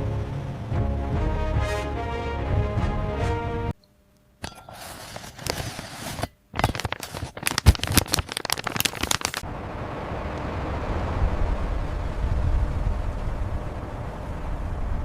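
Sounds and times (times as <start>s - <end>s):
crackling and crunching clicks: 6.5s - 9.4s.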